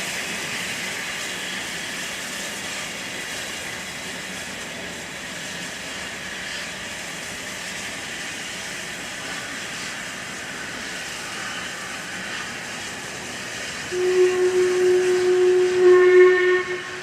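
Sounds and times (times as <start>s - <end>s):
steam hissing: 0.0s - 17.0s.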